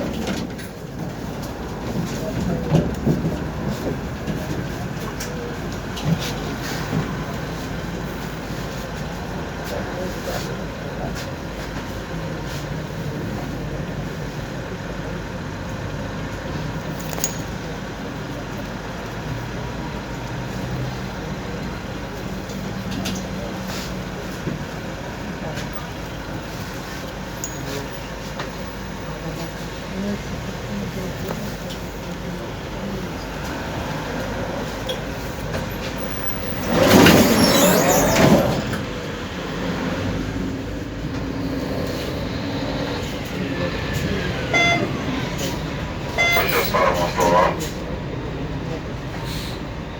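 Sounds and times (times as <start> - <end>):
tram running noise: 0.0 - 49.9
tram wheels screeching: 34.6 - 40.4, 41.0 - 49.9.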